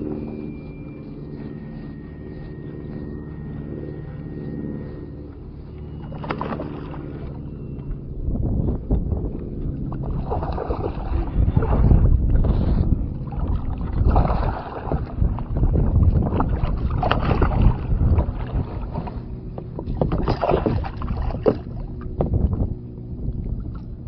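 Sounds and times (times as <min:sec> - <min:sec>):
wind rumbling on microphone: 0:00.0 - 0:24.0
water splashing around kayak: 0:04.5 - 0:08.0, 0:09.0 - 0:24.0.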